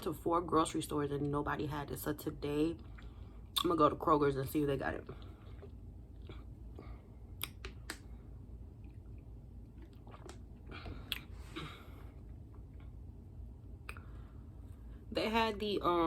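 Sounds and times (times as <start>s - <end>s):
wet mouth clicks: 7.4s - 8.0s, 9.8s - 10.5s, 11.1s - 11.3s
person chewing crunchy food: 8.6s - 11.6s.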